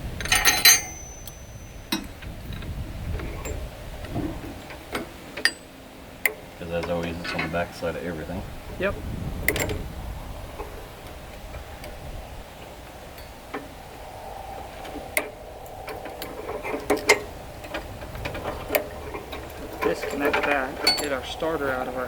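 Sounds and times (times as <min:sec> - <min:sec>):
hand tools clicking on metal: 0:00.0 - 0:02.2, 0:15.9 - 0:21.2.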